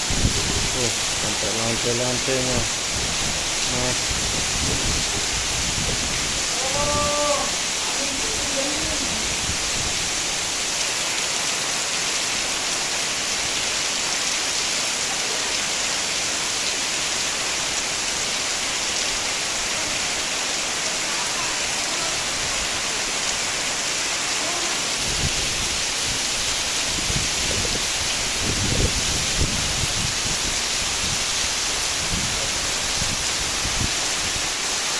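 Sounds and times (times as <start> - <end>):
low gusty rumbles: 0.0 - 10.6, 24.8 - 34.4
heavy rain pouring: 0.0 - 34.9.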